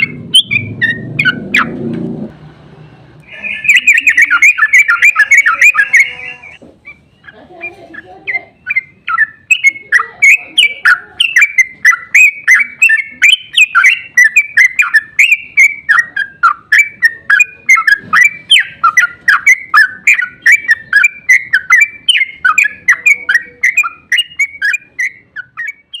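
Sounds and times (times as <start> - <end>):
bird singing rapid song: 0.0 - 1.8, 3.2 - 26.0.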